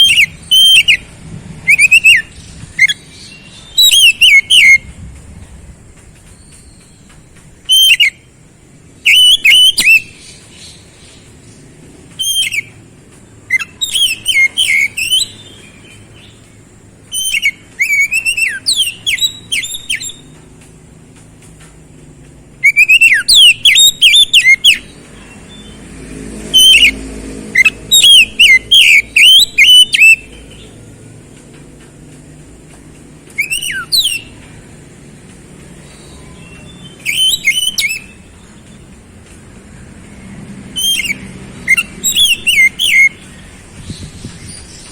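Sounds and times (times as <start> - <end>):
bird singing whistled phrases: 0.0 - 4.9, 7.6 - 8.3, 9.0 - 10.8, 12.2 - 12.8, 13.5 - 16.4, 17.1 - 20.4, 22.6 - 25.8, 26.6 - 27.0, 27.6 - 30.8, 33.3 - 34.4, 35.9 - 38.8, 40.8 - 43.3.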